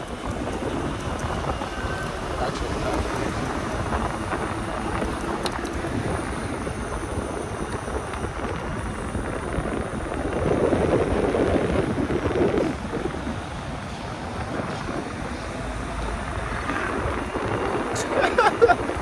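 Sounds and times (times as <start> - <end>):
road rumble: 0.0 - 19.0
wind rushing over microphone: 0.0 - 19.0.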